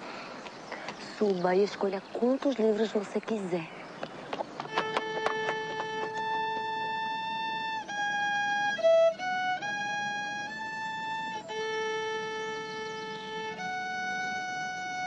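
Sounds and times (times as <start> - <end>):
violin playing slow melody: 4.7 - 15.0.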